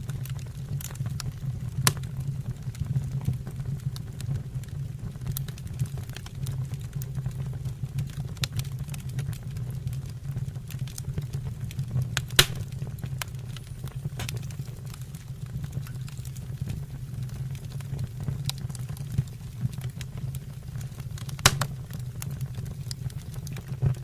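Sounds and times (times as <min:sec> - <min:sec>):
fire crackles: 0:00.0 - 0:24.0
low rumble of flame: 0:00.0 - 0:24.0
sharp loud fire pop: 0:12.4 - 0:13.0, 0:21.4 - 0:22.0.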